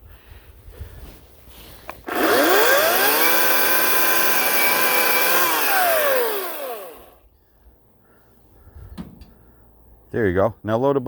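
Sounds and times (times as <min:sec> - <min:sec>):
electric chainsaw motor whine: 0:02.0 - 0:07.2.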